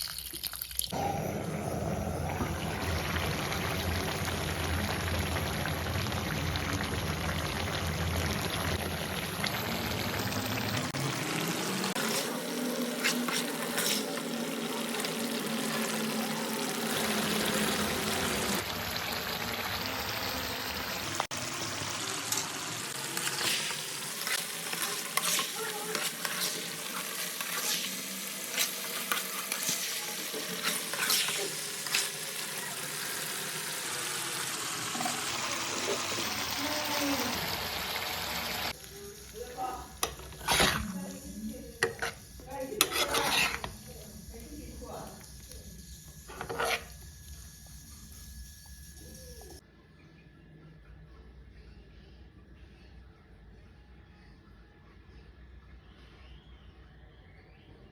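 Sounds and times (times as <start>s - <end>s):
chicken frying in hot oil: 0.0s - 49.6s
spatula scraping a pan: 11.9s - 15.7s, 23.2s - 32.2s, 39.9s - 44.2s, 46.2s - 47.0s.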